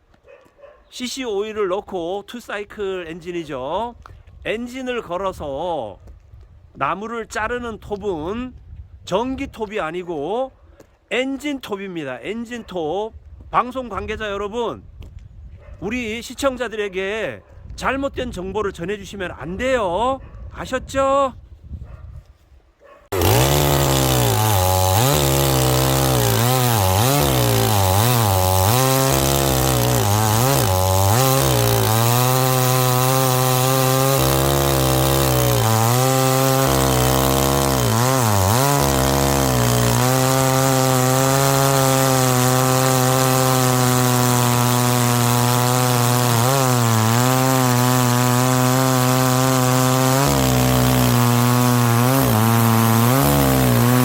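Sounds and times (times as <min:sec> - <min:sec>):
chainsaw cutting wood: 0:23.1 - 0:54.0.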